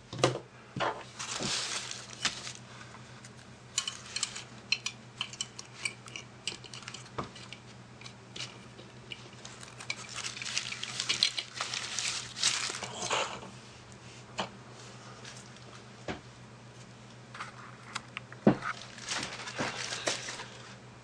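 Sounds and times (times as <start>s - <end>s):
steady low hum: 0.0s - 21.0s
rustling: 1.1s - 2.9s, 9.2s - 13.3s, 18.6s - 20.8s
small hard objects clinking: 8.4s - 13.1s, 18.7s - 20.6s.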